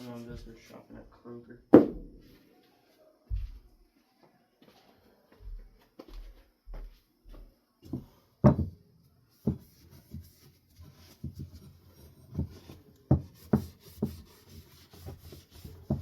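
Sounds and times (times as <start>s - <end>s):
fan parts knocking and rubbing: 9.4s - 16.0s.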